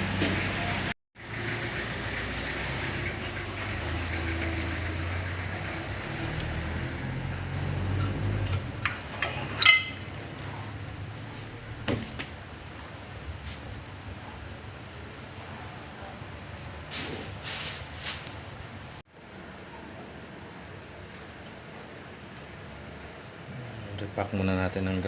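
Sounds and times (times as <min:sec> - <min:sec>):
metal tools clinking: 0:09.1 - 0:10.2
loud ringing metal clank: 0:09.6 - 0:10.2.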